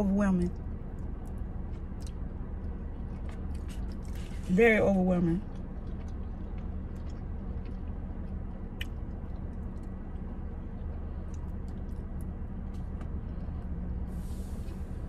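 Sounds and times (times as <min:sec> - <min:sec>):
low hum inside a car: 0:00.0 - 0:15.0
person chewing: 0:01.2 - 0:04.5, 0:05.4 - 0:13.8.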